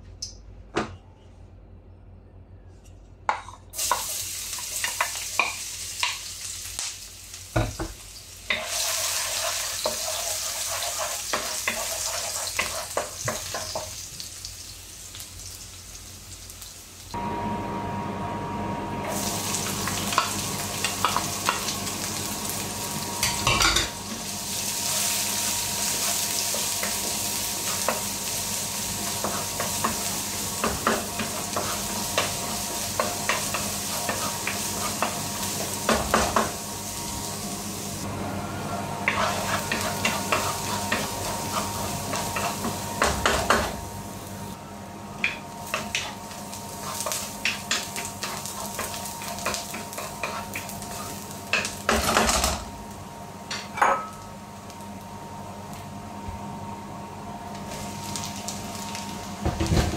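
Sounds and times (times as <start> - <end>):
onion and garlic sizzling: 3.7 - 59.9
wooden spatula scraping pan: 39.0 - 42.7.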